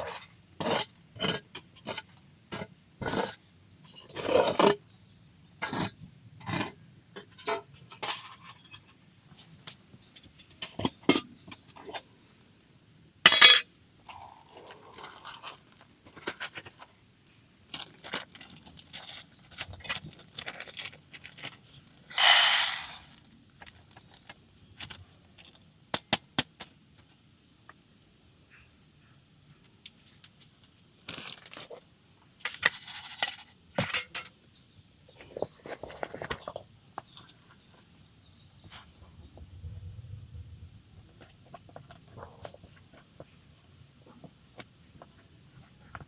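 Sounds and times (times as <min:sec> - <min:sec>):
metal cookware clinking: 0:13.3 - 0:13.6, 0:22.2 - 0:23.0
metal scraping: 0:13.3 - 0:13.6, 0:22.2 - 0:23.1.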